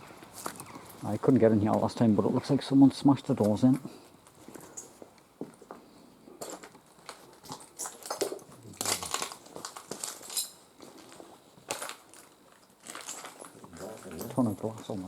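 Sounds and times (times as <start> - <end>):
footsteps crunching on broken glass: 6.4 - 15.0
glass shards clinking: 7.5 - 9.4, 10.0 - 10.6.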